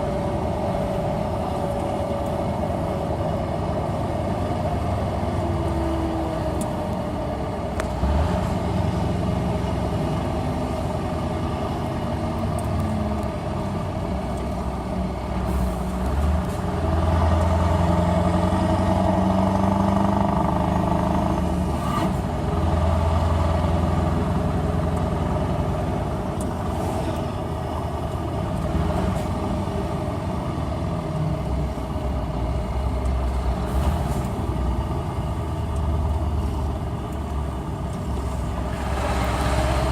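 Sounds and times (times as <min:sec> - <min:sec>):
truck engine idling and revving: 0:00.0 - 0:39.9.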